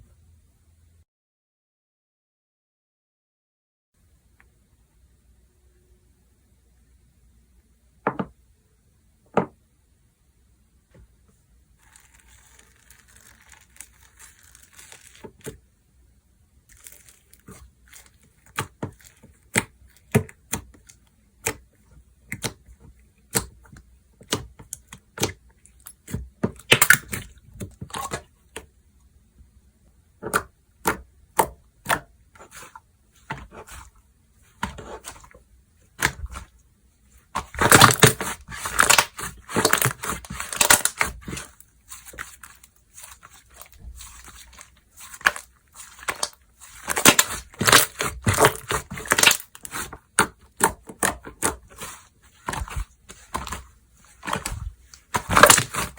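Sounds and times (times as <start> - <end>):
slime clicking and popping: 26.6 - 27.2, 45.2 - 51.6.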